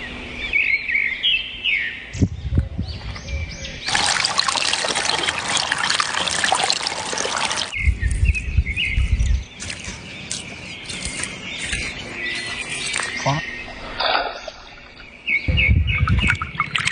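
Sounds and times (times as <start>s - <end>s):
birds chirping: 0.0s - 16.9s
water splashing and rushing: 3.9s - 7.8s, 16.2s - 16.9s
deep rumble: 15.4s - 16.6s.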